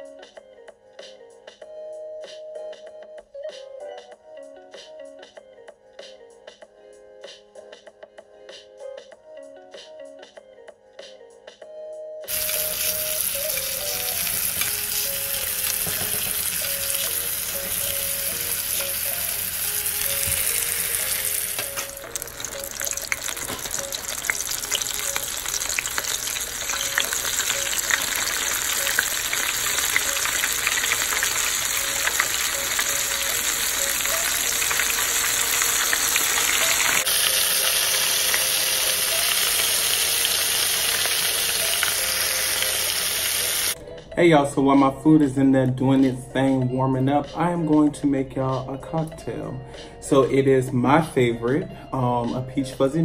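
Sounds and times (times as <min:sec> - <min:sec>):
butter sizzling in a skillet: 0:12.3 - 0:43.8
hot oil bubbling and crackling: 0:12.3 - 0:43.8.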